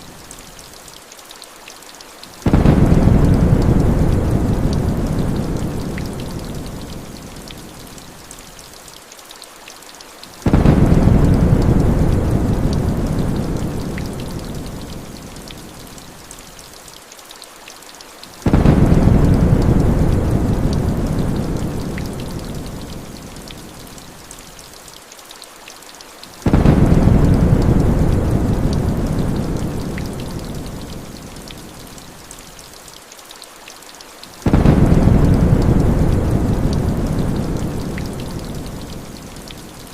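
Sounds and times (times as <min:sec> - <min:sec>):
heavy rain falling: 0:00.0 - 0:39.9
deep thunder rumbles: 0:02.4 - 0:06.9, 0:10.5 - 0:14.9, 0:18.5 - 0:22.9, 0:26.4 - 0:30.9, 0:34.4 - 0:39.0.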